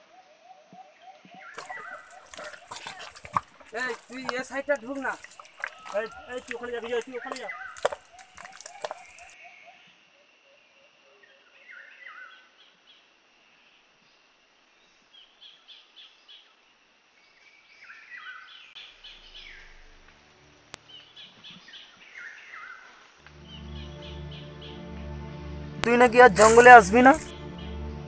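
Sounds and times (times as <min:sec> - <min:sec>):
birds chirping: 0:01.6 - 0:09.4, 0:23.4 - 0:25.0, 0:25.8 - 0:27.8.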